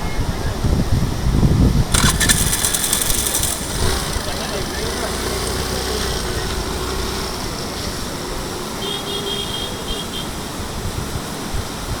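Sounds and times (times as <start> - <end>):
low engine hum: 1.9 - 10.6.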